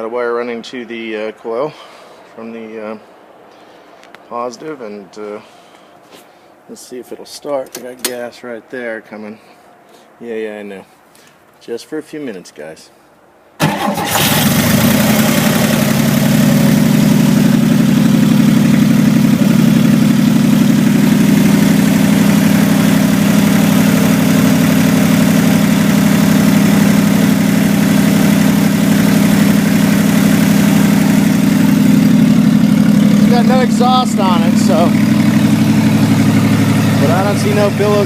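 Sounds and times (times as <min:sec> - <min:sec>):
car engine idling: 0:13.6 - 0:38.0.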